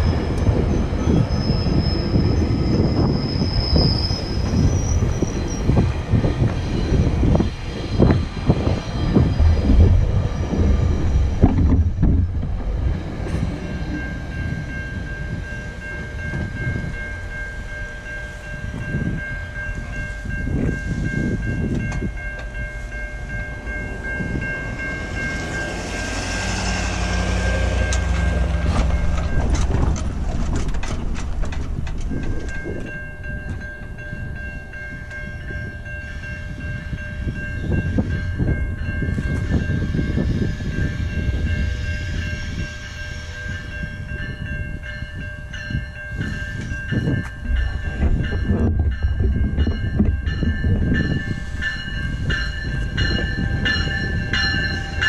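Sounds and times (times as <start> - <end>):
crossing warning bell ringing: 0.0 - 55.0
train wheels rumbling and clattering: 0.0 - 55.0.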